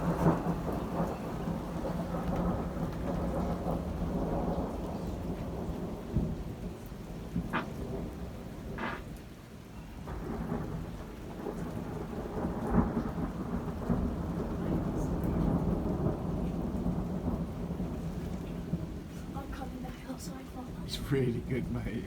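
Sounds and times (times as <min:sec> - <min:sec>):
thunder rolling: 0:00.0 - 0:09.3, 0:10.1 - 0:19.6
heavy rain: 0:00.0 - 0:22.0
sharp thunder crack: 0:08.7 - 0:09.2.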